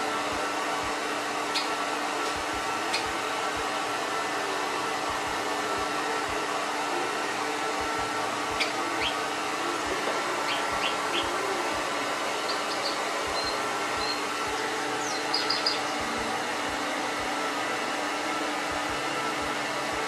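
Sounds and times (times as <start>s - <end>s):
hair dryer running: 0.0s - 20.0s
bird chirping: 1.5s - 1.8s, 8.6s - 9.2s, 10.5s - 11.4s, 12.4s - 14.2s, 15.0s - 16.1s.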